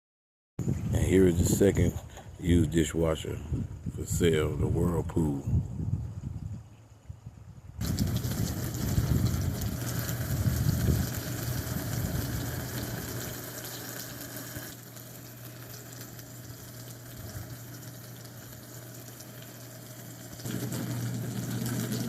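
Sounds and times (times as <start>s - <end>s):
water rushing inside dishwasher: 7.8s - 14.8s, 16.6s - 22.0s
dishwasher pump motor hum: 7.8s - 22.0s.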